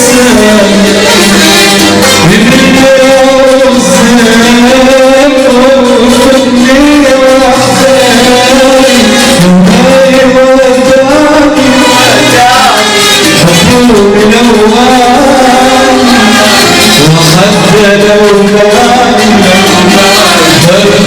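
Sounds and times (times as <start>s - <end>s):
band music with ornamented melody: 0.0s - 21.0s.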